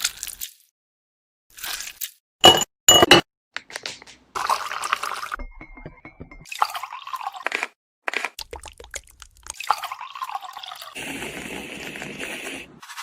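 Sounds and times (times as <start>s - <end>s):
glassware clinking: 2.4s - 3.2s
liquid being poured: 4.4s - 5.4s, 6.4s - 7.7s, 8.4s - 12.6s.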